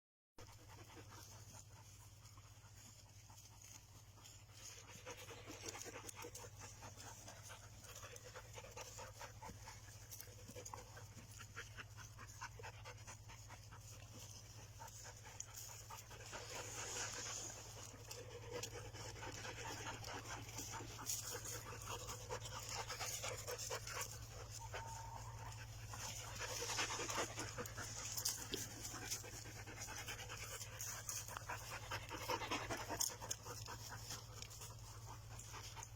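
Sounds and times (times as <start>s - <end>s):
dog panting: 0.4s - 35.9s.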